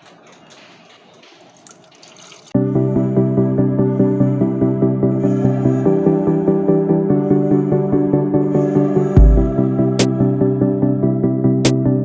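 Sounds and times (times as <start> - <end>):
water trickling: 0.0 - 2.6.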